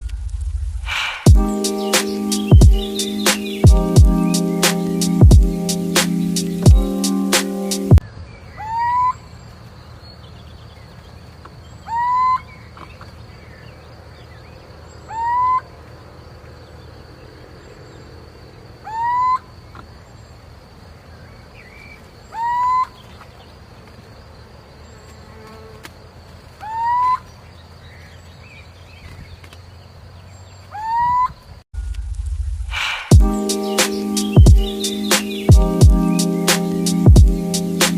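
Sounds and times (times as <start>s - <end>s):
low hum: 0.0s - 2.8s, 31.8s - 33.5s
bird calling: 0.9s - 9.5s, 11.8s - 13.8s, 15.0s - 15.7s, 18.8s - 19.8s, 21.3s - 23.4s, 26.6s - 29.5s, 30.5s - 31.5s, 32.7s - 37.9s.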